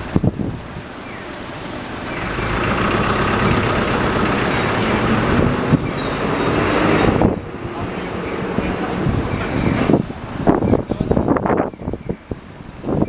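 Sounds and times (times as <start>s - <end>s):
heavy vehicle engine running: 0.0s - 11.1s
thin high whine: 2.0s - 11.2s.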